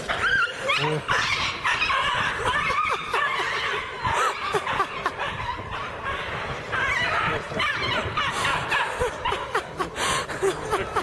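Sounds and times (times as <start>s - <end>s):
people laughing: 0.0s - 5.7s, 7.1s - 11.0s.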